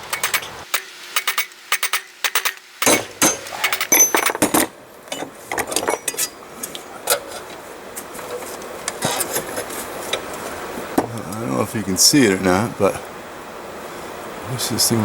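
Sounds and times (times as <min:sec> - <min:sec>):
blacksmith tools striking metal: 0:00.0 - 0:06.4.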